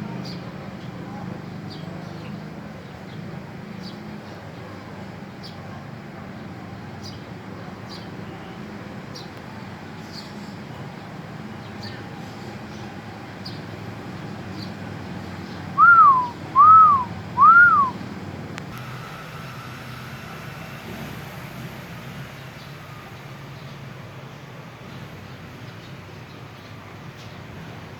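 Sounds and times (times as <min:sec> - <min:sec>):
faint high chirps: 0:15.8 - 0:17.9
bird whistling clear notes: 0:15.8 - 0:18.0.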